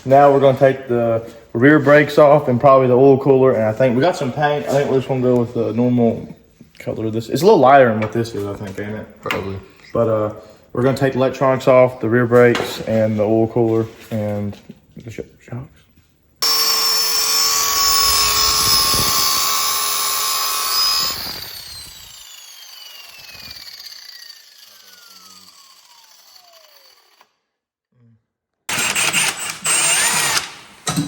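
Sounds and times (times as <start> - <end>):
power tool motor whining: 16.4 - 27.4, 28.7 - 30.7.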